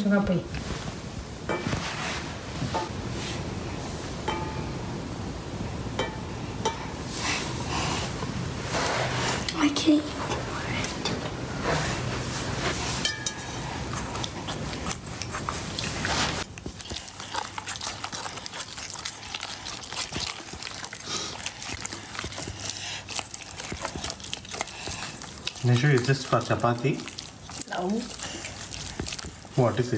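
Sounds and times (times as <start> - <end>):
slime squelching: 7.4 - 29.9.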